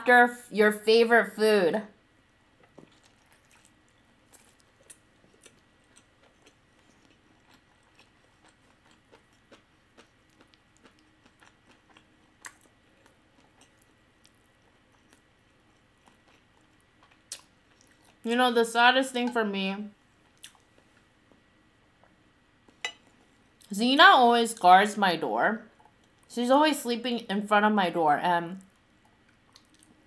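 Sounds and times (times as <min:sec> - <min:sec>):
soft mouth clicks and crunches: 0:02.6 - 0:18.2, 0:20.3 - 0:21.4, 0:28.6 - 0:30.0
faint close-up chewing: 0:02.6 - 0:18.3, 0:20.2 - 0:23.7, 0:28.6 - 0:30.0.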